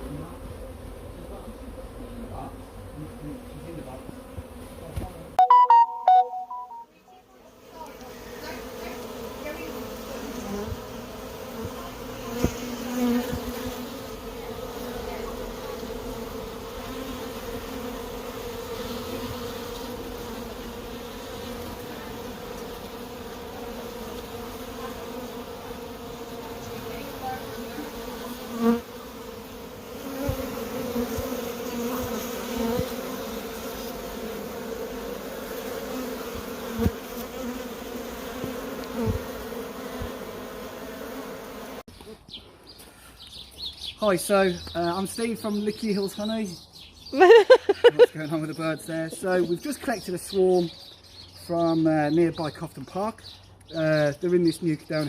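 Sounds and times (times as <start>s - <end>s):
bee swarm buzzing: 0.0s - 41.9s.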